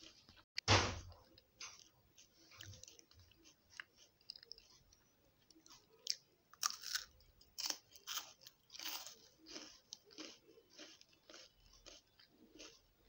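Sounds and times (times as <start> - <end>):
soft chewing: 0.0 - 0.4, 1.1 - 13.0
crisp crunching of wafer bar: 6.5 - 12.8.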